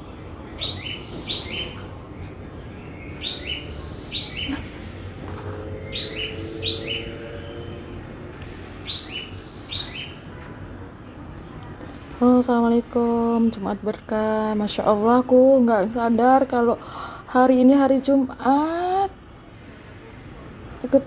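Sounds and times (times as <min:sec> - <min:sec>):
small bird chirping: 0:00.4 - 0:08.0, 0:08.8 - 0:10.2.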